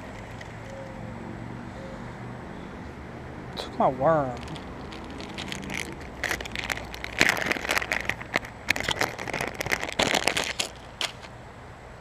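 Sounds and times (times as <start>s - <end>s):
crackling and crinkling rustle: 0.0s - 1.0s, 4.1s - 11.4s.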